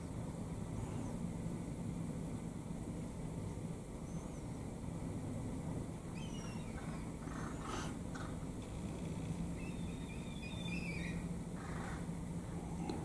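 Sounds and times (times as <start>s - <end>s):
steady low hum: 0.0s - 13.0s
birds chirping: 6.0s - 13.0s
bird warbling call: 6.1s - 8.3s, 9.5s - 12.1s.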